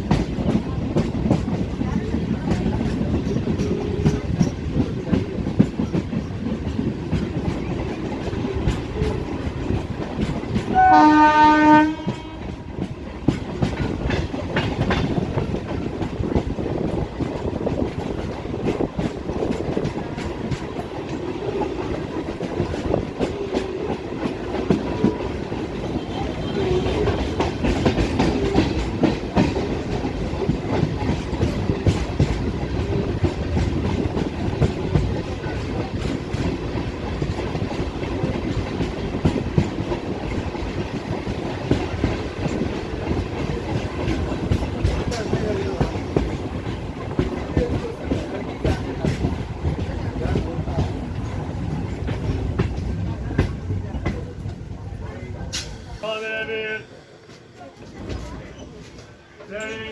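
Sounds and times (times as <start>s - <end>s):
clickety-clack over rail joints: 0.0s - 59.9s
train wheels rumbling: 0.0s - 59.9s
train horn blast: 10.7s - 12.7s.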